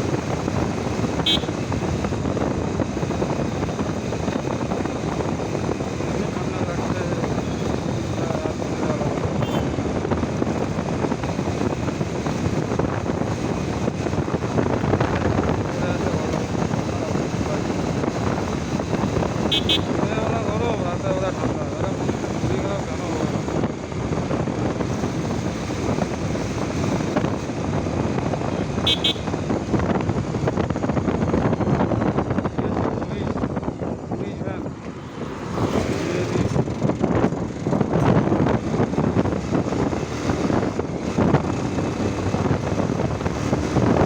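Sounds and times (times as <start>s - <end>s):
motorcycle engine: 0.0s - 44.0s
road noise: 0.0s - 44.0s
wind rushing over microphone: 0.0s - 44.0s
vehicle horn toots: 1.2s - 1.7s, 9.4s - 9.8s, 19.4s - 20.1s, 28.8s - 29.5s.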